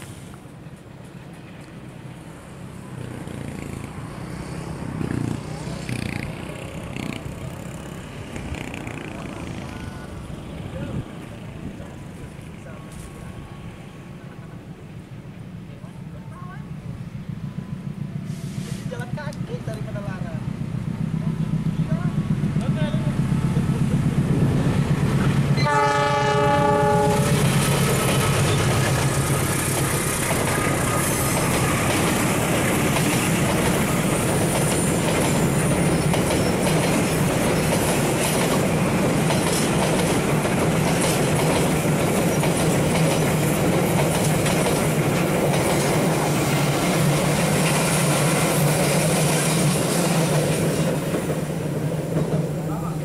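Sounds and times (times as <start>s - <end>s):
train engine drone: 0.0s - 53.0s
clickety-clack of train wheels: 5.0s - 10.0s, 18.4s - 53.0s
train horn blast: 25.6s - 27.5s.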